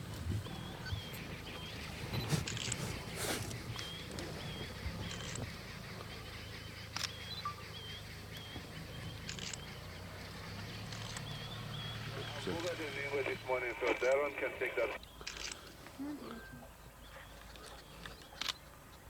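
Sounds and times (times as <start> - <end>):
small bird chirping: 0.1 - 13.4
brief clicks: 2.1 - 4.2, 9.3 - 9.7, 15.2 - 15.7.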